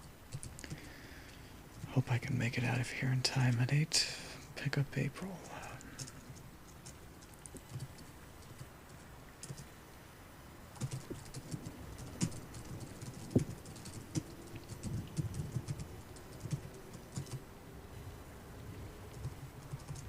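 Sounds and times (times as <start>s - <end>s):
typing on a computer keyboard: 0.0s - 0.9s, 5.8s - 9.7s, 10.8s - 17.4s, 19.1s - 20.0s
rain hiss: 0.0s - 20.0s.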